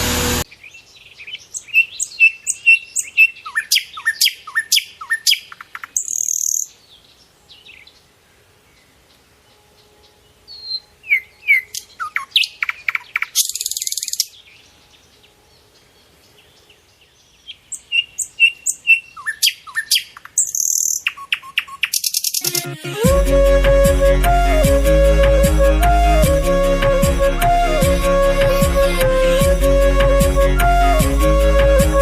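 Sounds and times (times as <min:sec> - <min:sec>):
birds chirping and calling: 0:00.5 - 0:06.7, 0:10.6 - 0:14.4, 0:17.4 - 0:22.6.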